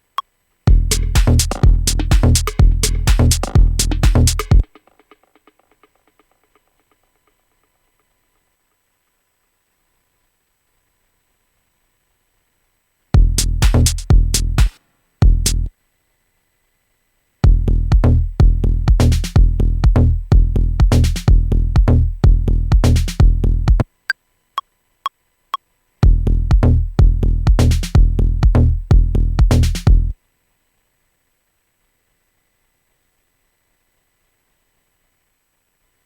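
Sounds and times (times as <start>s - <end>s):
drum machine groove with bass: 0.7s - 6.7s, 13.2s - 15.7s, 17.4s - 23.9s, 26.0s - 30.2s.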